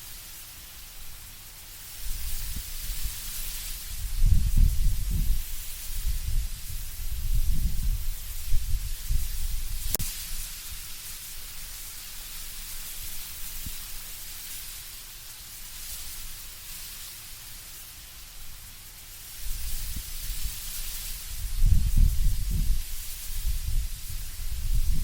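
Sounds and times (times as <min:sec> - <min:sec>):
leaves rustling: 0:00.0 - 0:25.0
wind in trees: 0:00.0 - 0:25.0.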